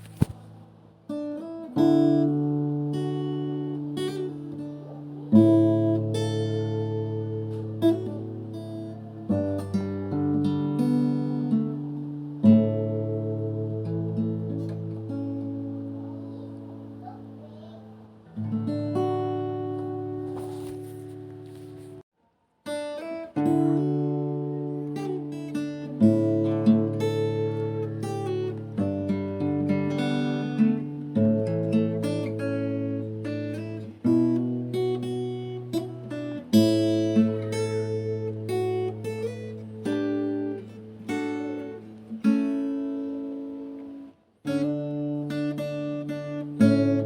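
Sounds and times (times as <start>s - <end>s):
acoustic guitar strumming: 0.0s - 22.0s, 22.7s - 47.0s.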